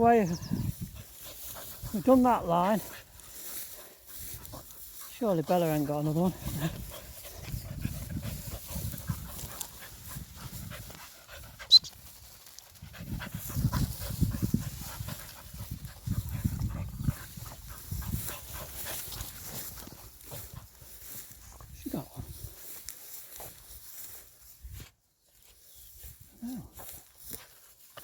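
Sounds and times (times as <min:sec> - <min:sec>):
dog panting: 0:00.7 - 0:21.2.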